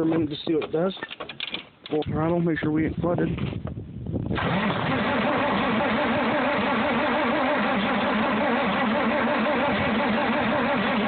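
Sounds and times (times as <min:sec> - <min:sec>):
tractor starter cranking engine: 0:04.3 - 0:11.0.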